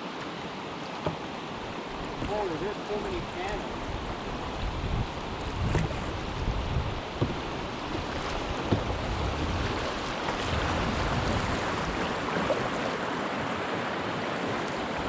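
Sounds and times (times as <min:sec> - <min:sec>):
wind buffeting microphone: 0:03.3 - 0:12.7.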